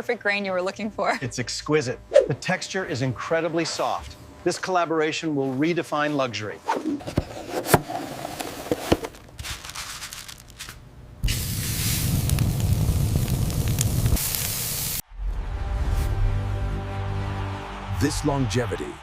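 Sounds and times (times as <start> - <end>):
loud spraying hiss: 11.2 - 15.0.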